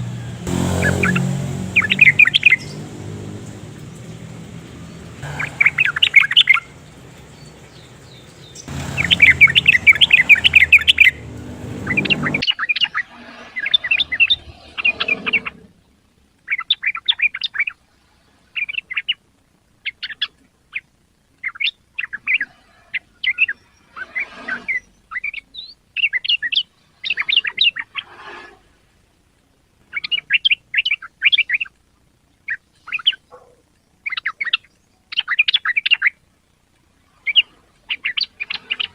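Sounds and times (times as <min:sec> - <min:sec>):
bird chattering song: 0:01.8 - 0:02.8, 0:05.2 - 0:13.0, 0:32.4 - 0:36.2.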